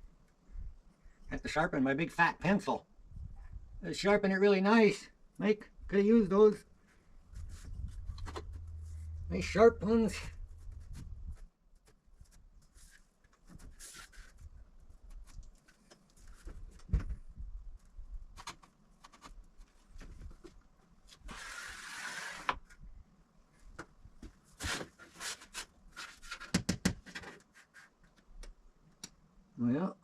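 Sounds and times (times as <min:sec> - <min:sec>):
scraping rub: 0:21.2 - 0:22.6.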